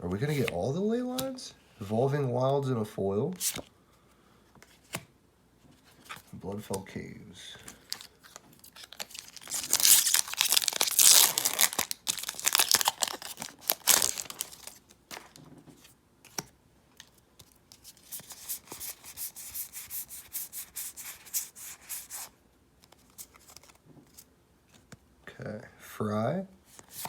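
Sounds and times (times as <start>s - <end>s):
foil wrapper tearing and crinkling: 7.9s - 14.8s.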